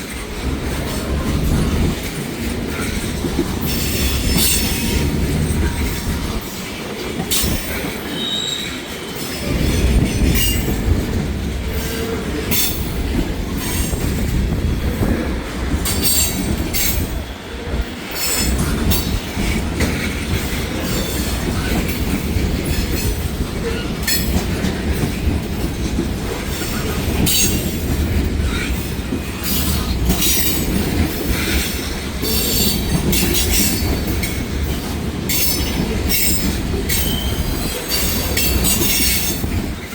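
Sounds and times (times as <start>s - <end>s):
freight train rumble: 0.0s - 39.9s
wheels clicking over rail joints: 0.0s - 39.9s
wheels squealing: 2.7s - 6.4s, 7.3s - 10.8s, 29.4s - 39.6s.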